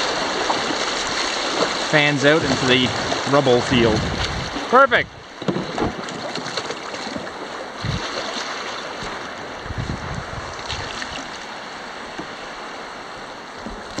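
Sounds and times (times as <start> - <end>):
river rapids rushing: 0.0 - 9.7, 10.4 - 14.0
dull low thumps: 2.5 - 5.4, 7.8 - 8.1, 9.6 - 10.8.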